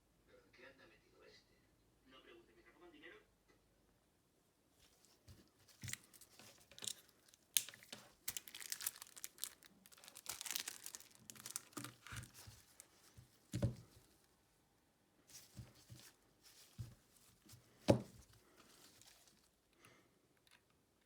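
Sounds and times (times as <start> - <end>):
plastic crinkling and tearing: 4.9 - 13.9, 15.3 - 19.5
dull thump: 17.8 - 18.2.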